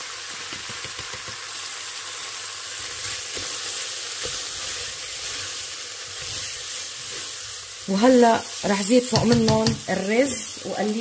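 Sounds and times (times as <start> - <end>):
meat and mushrooms sizzling: 0.0 - 11.0
spoon knocking on pot: 0.5 - 1.4, 9.1 - 9.9.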